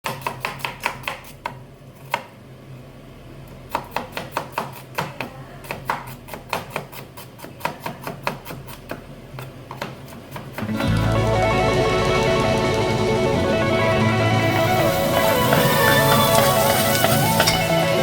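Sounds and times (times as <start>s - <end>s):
knife chopping on cutting board: 0.0s - 2.3s, 3.7s - 10.7s.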